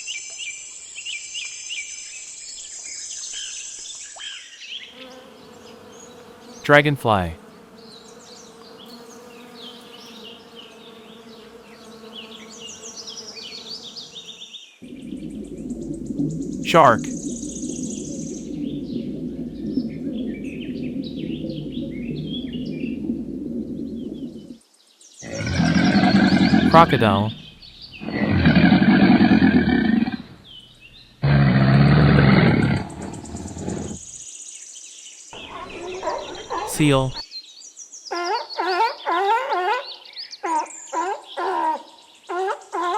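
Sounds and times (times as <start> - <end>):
crocodile growling: 25.2 - 26.7, 28.0 - 30.4, 31.2 - 34.0.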